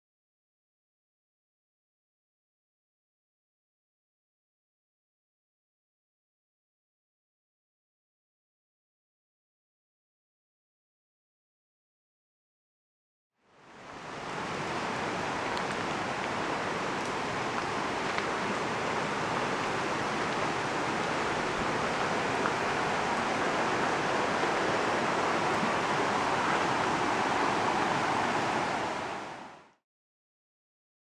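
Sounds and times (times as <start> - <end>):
steady rushing noise: 18.5 - 29.7.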